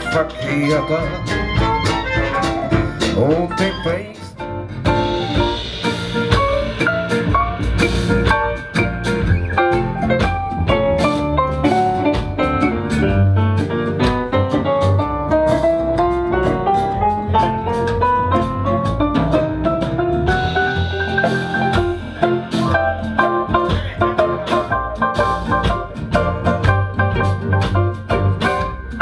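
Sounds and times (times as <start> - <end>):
drum kit: 0.0 - 29.0
jazz ensemble playing live: 0.0 - 29.0.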